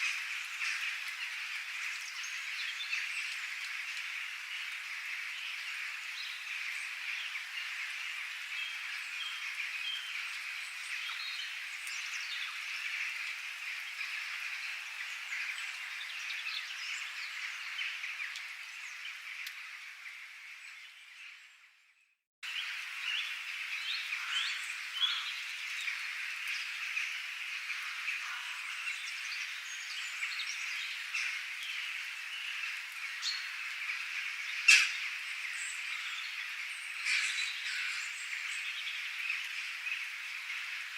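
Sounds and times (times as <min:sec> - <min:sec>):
birds chirping: 0:00.0 - 0:40.9
frogs chorus: 0:22.5 - 0:40.9.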